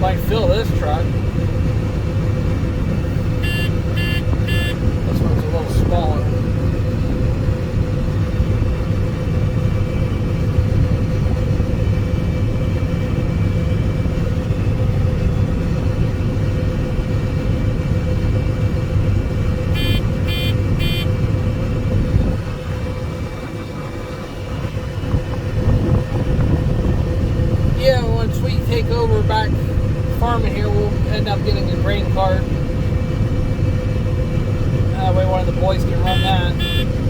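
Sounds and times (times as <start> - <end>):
combine harvester low hum: 0.0 - 37.0
short electronic beeps: 3.4 - 4.8, 19.8 - 21.1, 36.1 - 36.9.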